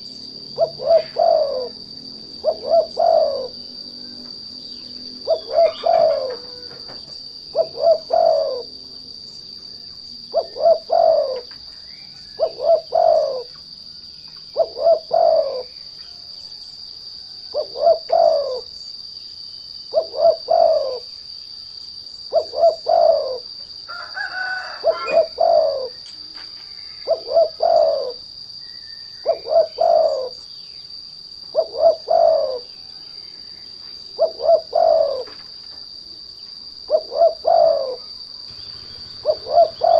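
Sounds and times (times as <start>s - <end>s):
dove cooing: 0.0s - 9.4s, 10.2s - 13.6s, 14.5s - 15.8s, 17.4s - 18.8s, 19.9s - 21.1s, 22.2s - 26.0s, 26.8s - 30.4s, 31.4s - 35.5s, 36.8s - 39.9s
steady high-pitched whine: 0.0s - 39.9s
higher bird call: 5.3s - 6.9s, 22.3s - 26.0s, 36.9s - 39.9s.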